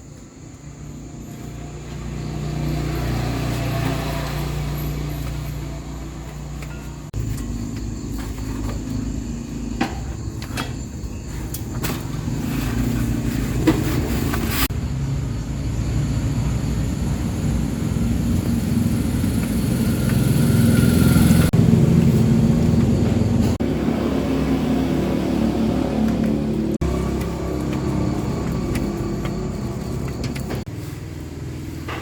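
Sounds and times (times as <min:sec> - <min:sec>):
diesel engine running: 0:12.0 - 0:32.0.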